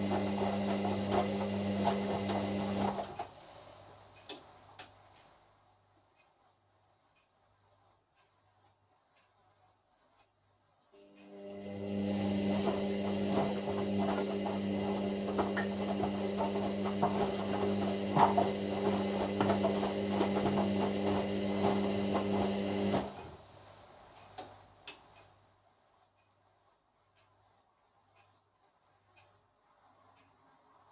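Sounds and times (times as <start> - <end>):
washer dryer drum motor whine: 0.0 - 3.4, 10.9 - 23.6
laundry tumbling and knocking: 12.8 - 22.3.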